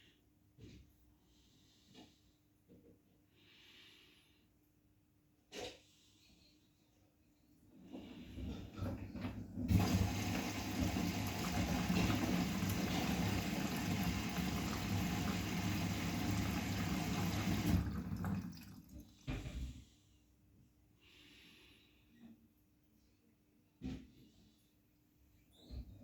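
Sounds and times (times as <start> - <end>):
water rushing through washing machine: 8.8 - 19.2.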